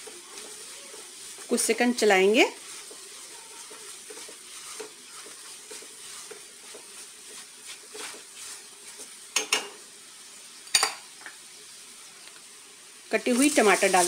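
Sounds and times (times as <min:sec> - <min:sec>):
spatula stirring and scraping: 0:00.0 - 0:09.9, 0:13.2 - 0:14.0
onions sizzling in a pan: 0:00.0 - 0:14.0.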